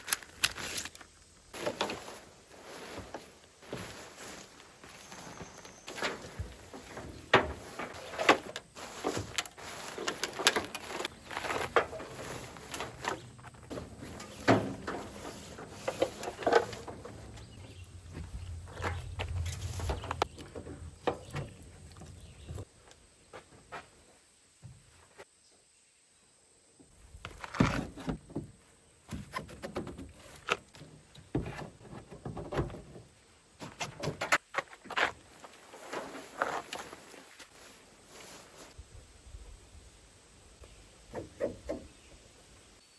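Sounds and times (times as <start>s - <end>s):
knocks and clunks: 5.4s - 22.7s, 27.2s - 34.4s, 41.0s - 42.0s.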